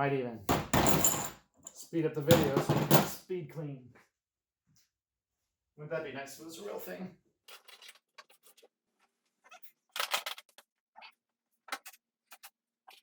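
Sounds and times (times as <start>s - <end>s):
tools clicking and clinking: 0.5s - 3.2s.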